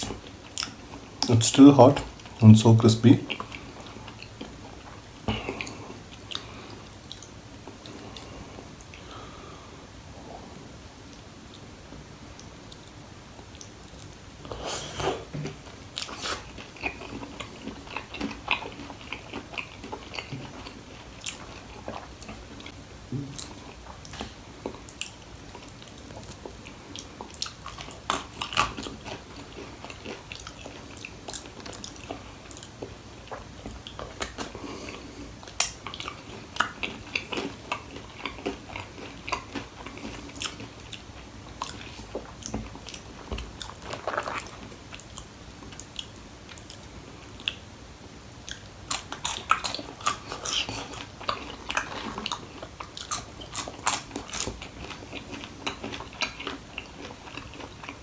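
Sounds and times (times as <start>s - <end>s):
crunching fried chicken: 24.9s - 47.6s, 48.4s - 58.0s.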